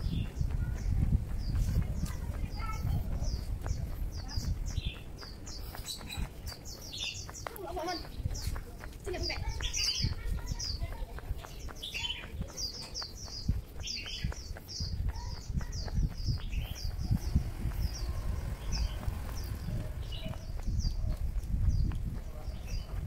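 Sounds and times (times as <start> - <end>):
small birds chirping: 0.0 - 23.0
low rumble: 16.8 - 22.1.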